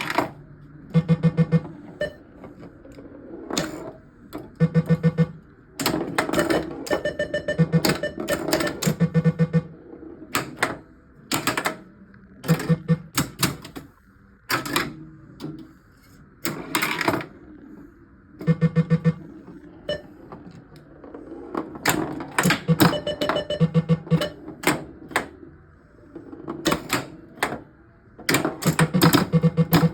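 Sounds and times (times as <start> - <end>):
pinball machine mechanical clacks: 0.0 - 15.8, 16.4 - 17.6, 18.3 - 29.9
rapid low electronic beeps: 0.9 - 2.2, 4.5 - 5.5, 6.4 - 9.8, 18.4 - 20.1, 22.6 - 24.4, 28.8 - 29.9.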